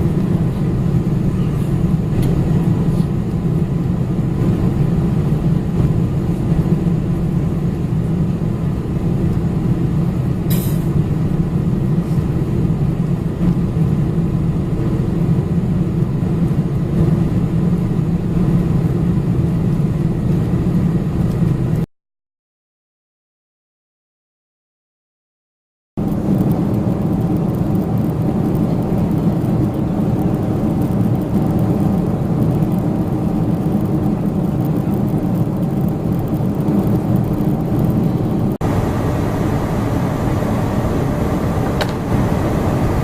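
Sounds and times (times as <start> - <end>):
airplane engines droning in cabin: 0.0 - 21.9, 26.0 - 43.0
rushing air: 38.5 - 43.0.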